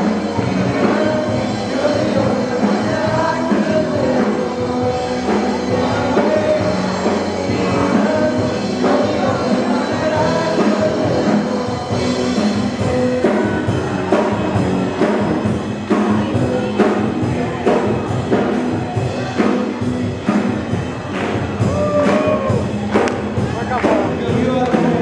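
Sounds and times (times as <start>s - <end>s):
drum kit beat: 0.0s - 25.0s
rock worship song with singing: 0.0s - 25.0s.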